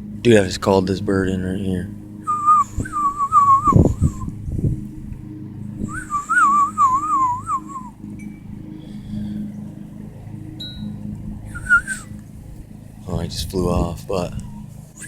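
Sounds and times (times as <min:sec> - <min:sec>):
steady low hum: 0:00.0 - 0:15.0
person whistling bird call: 0:02.3 - 0:04.3, 0:05.9 - 0:07.9, 0:11.5 - 0:12.1
low thumps: 0:02.3 - 0:08.7.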